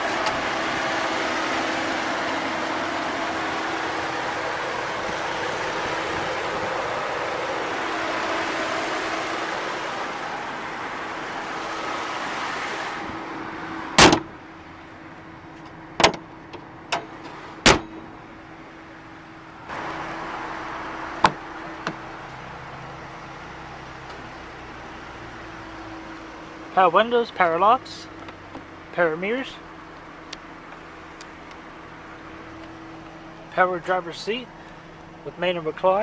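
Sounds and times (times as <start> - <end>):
car engine idling: 0.0 - 36.0
car panel slamming shut: 14.0 - 14.3, 16.0 - 16.2, 16.9 - 18.0.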